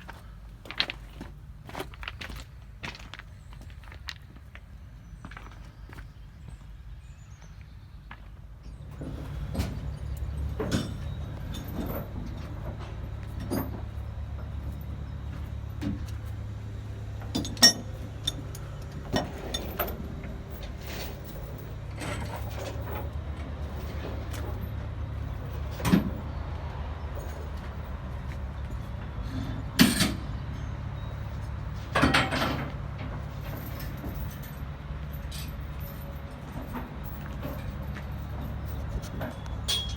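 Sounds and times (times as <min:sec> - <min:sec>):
engine running at low speed: 0:07.8 - 0:39.9
knocks and clunks: 0:31.8 - 0:34.3.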